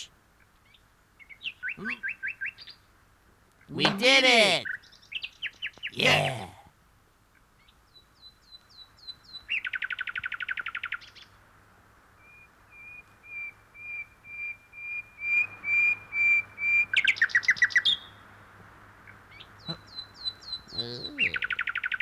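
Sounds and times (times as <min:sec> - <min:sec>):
small birds chirping and trilling: 0:19.6 - 0:21.5.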